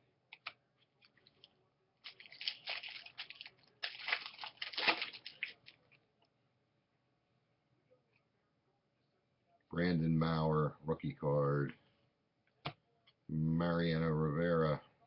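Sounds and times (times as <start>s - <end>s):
foil wrapper crinkling and tearing: 1.2s - 5.8s.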